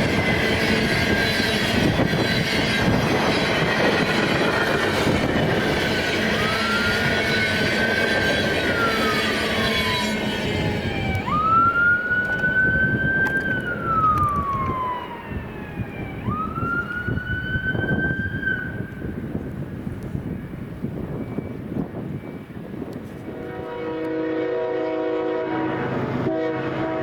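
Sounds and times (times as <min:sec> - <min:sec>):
emergency siren wailing: 0:00.0 - 0:19.3
train rumble: 0:00.0 - 0:27.0.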